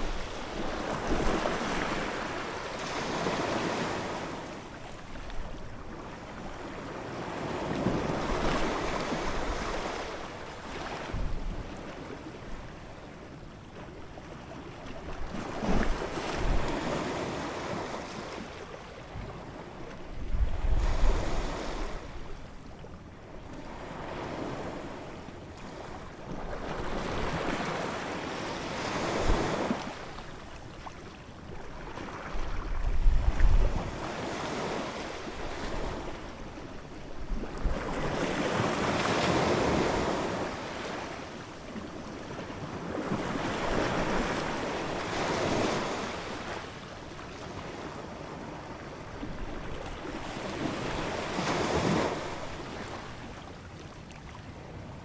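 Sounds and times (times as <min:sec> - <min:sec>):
ocean waves breaking on shore: 0:00.0 - 0:12.7, 0:23.4 - 0:55.0
low rumble of waves: 0:29.9 - 0:34.3.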